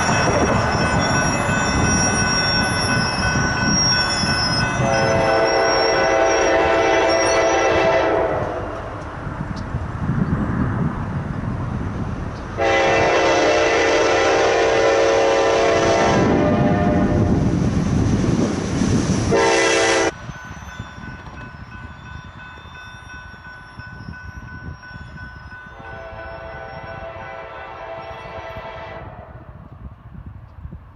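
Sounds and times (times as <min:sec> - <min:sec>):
moving train rumble: 0:00.0 - 0:30.9
locomotive air horn: 0:04.8 - 0:08.7, 0:12.6 - 0:17.3, 0:19.3 - 0:20.2, 0:25.8 - 0:29.4.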